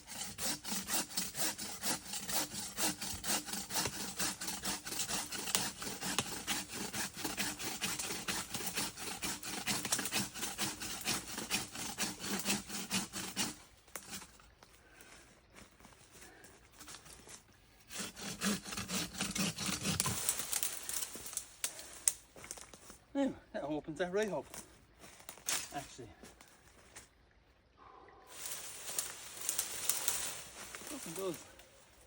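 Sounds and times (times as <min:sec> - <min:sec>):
hand saw cutting wood: 0:00.0 - 0:14.4, 0:17.9 - 0:21.8, 0:28.5 - 0:31.6.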